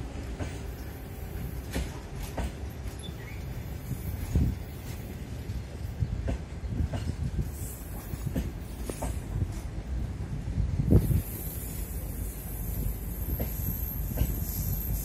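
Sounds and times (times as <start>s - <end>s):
wheels clacking over rail joints: 0.0s - 3.6s, 5.8s - 9.7s
train wheels rumbling on rail: 0.0s - 15.0s.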